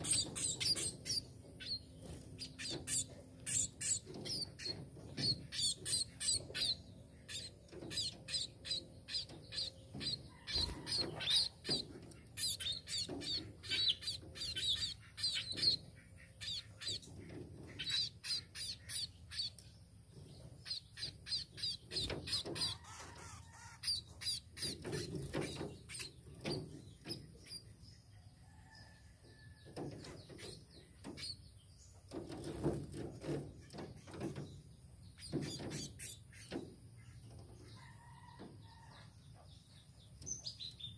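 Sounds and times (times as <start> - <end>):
finch chirping: 0.0 - 27.9, 30.0 - 37.9.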